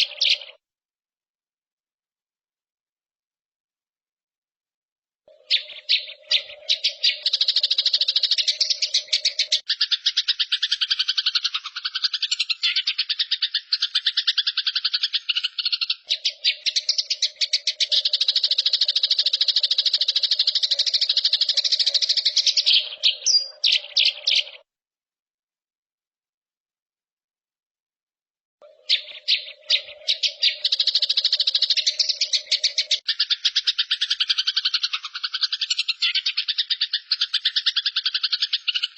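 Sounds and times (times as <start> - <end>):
songbird trilling: 0.0 - 0.6, 5.3 - 24.6, 28.6 - 38.9.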